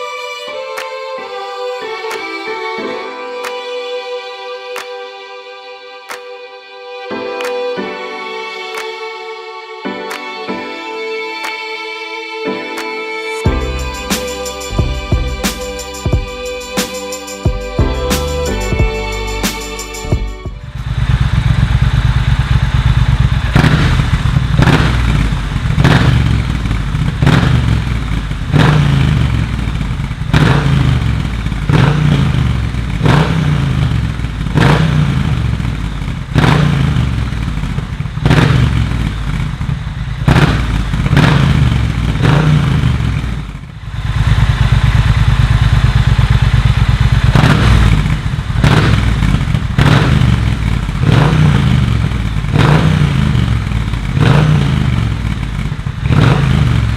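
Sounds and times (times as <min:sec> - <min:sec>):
motorcycle engine revving: 0:20.5 - 0:56.9.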